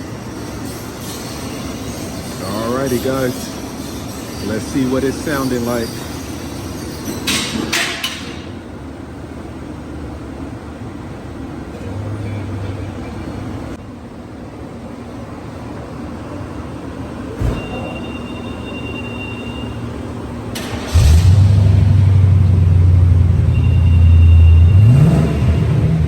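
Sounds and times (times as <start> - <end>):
car exhaust idling: 20.4 - 26.0
high electronic tone: 23.4 - 25.6.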